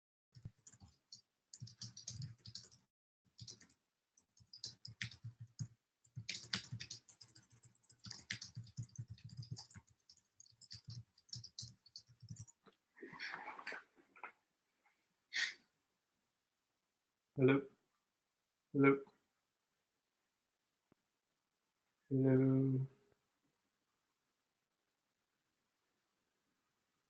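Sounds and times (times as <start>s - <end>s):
computer keyboard typing: 0.4s - 12.6s.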